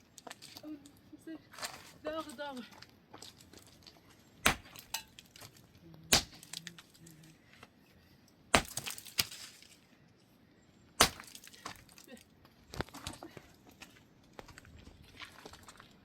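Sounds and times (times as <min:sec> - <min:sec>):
sharp loud cracks: 0:04.4 - 0:04.9, 0:08.5 - 0:09.3, 0:11.0 - 0:11.4.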